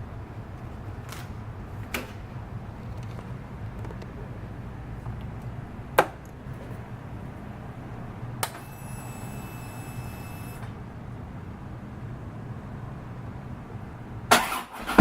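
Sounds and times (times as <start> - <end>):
steady low hum: 0.0 - 14.3
high electronic tone: 8.6 - 10.6.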